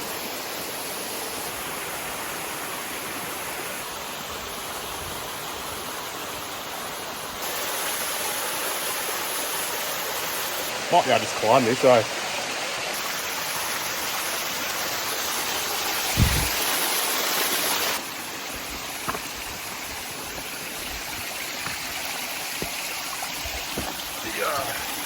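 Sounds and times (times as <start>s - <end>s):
creek water rushing over rocks: 0.0s - 25.0s
dull thump: 16.2s - 16.6s, 23.7s - 24.0s.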